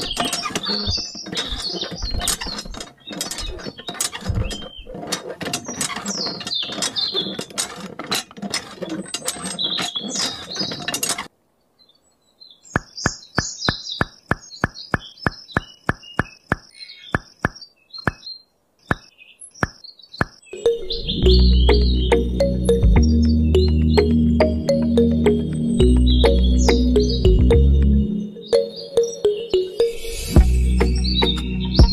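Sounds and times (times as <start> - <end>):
sharp clicks: 12.8 - 20.8.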